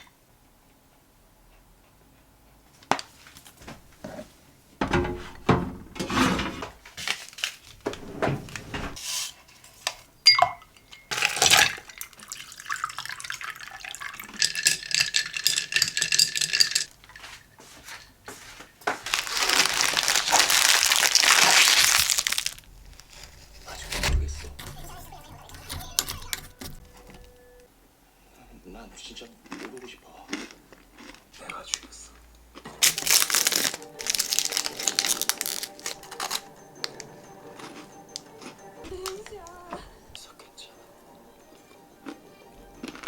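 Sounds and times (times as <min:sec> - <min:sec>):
dishes and utensils clinking: 0:03.9 - 0:06.8, 0:07.9 - 0:27.5
water running from a tap: 0:11.8 - 0:15.1.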